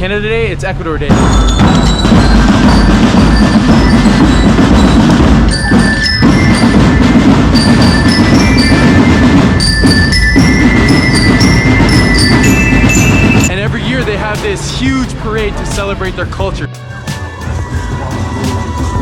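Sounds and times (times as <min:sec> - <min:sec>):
bell-toned melody: 0:01.1 - 0:14.1
steady drumming: 0:01.1 - 0:19.0.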